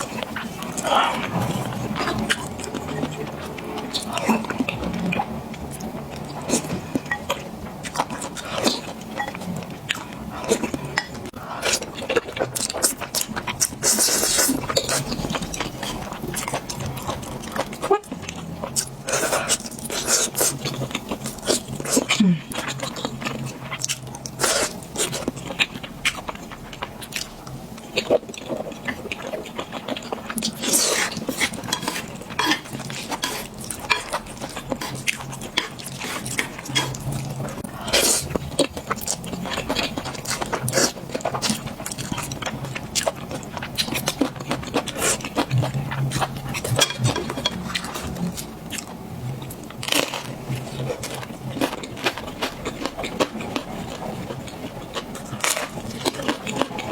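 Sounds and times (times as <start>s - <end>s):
chewing and biting food: 0.0s - 56.9s
utensils clinking against a bowl: 5.8s - 11.3s, 30.5s - 37.3s, 46.2s - 48.2s.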